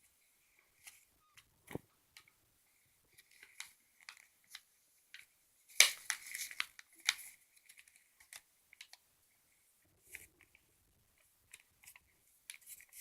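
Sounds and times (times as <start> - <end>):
paper rustling and crinkling: 5.8 - 9.0.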